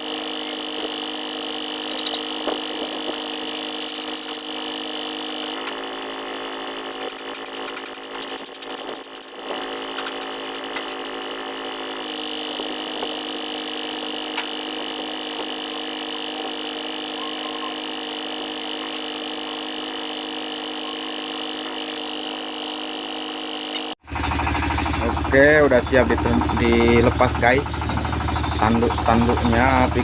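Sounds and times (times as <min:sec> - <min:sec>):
machinery humming: 0:00.0 - 0:30.0
tool clicks: 0:01.8 - 0:06.0, 0:06.8 - 0:11.4, 0:12.4 - 0:16.9.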